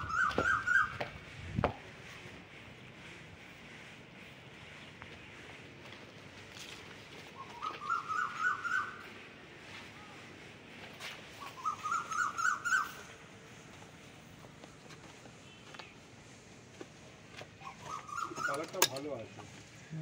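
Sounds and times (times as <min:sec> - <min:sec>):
bird calling rising notes: 0:00.0 - 0:01.3, 0:07.3 - 0:10.2, 0:11.2 - 0:13.3, 0:17.6 - 0:18.8
faint outdoor background noise: 0:00.0 - 0:20.0.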